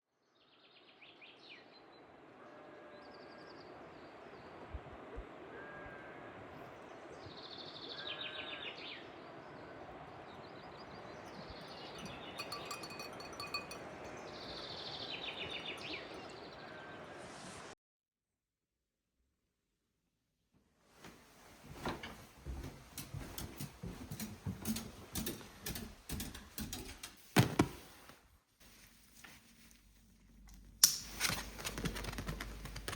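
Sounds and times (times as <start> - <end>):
songbirds singing: 6.6 - 17.1.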